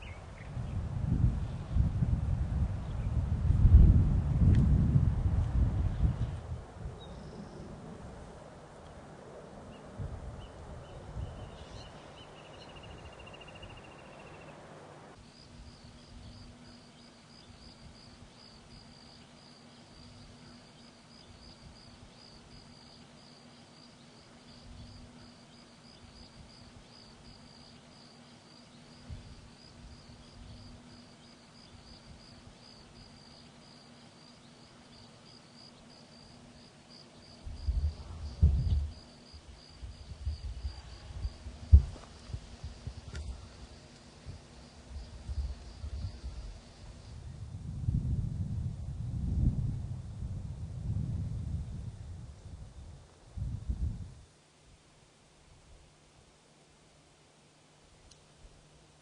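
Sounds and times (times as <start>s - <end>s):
faint low hum: 0.0s - 59.0s
high pulsing insect trill: 10.4s - 47.4s.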